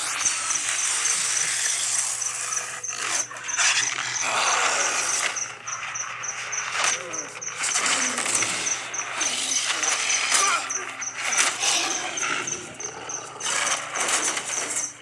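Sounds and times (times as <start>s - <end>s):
creature growling and snarling: 6.8s - 14.3s.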